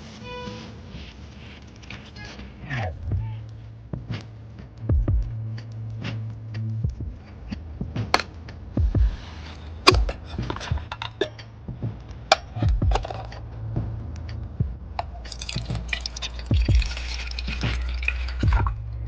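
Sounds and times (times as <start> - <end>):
dull low thuds: 2.9 - 15.1, 16.4 - 16.9, 18.4 - 19.0.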